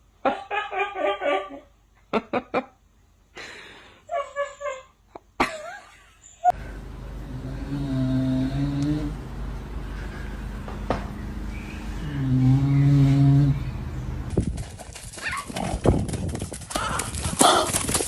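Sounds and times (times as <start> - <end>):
noisy hum with low tones: 6.5 - 14.6.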